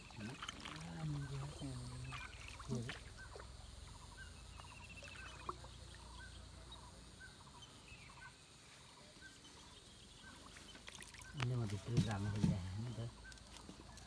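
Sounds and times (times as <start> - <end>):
faint bird calls: 0.0 - 14.0
bird clucking calls: 1.0 - 14.0.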